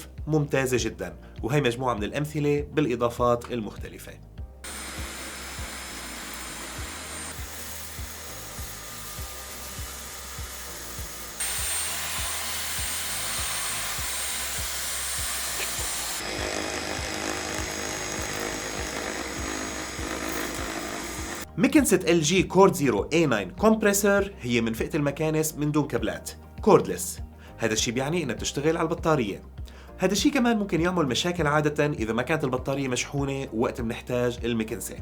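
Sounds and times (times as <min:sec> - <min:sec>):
stick vacuum whining hiss: 0:04.7 - 0:21.5
background music with beat: 0:26.0 - 0:32.2.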